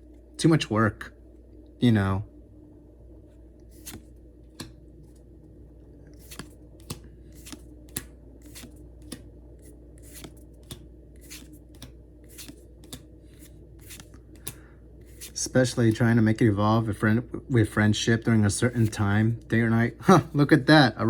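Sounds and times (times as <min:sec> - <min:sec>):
low steady hum: 0:00.0 - 0:21.0
trading cards swishing: 0:03.7 - 0:05.2, 0:06.2 - 0:16.0, 0:18.6 - 0:19.1.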